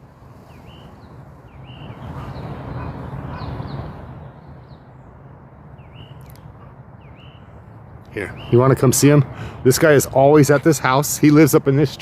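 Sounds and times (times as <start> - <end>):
passing vehicle rumble: 0.0 - 12.0
small bird chirping: 0.4 - 5.2, 5.8 - 7.5.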